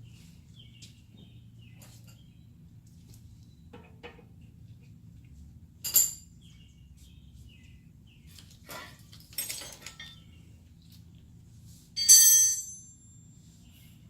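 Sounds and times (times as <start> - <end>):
metal tools clinking: 5.8 - 6.3, 8.7 - 10.3, 12.0 - 13.2.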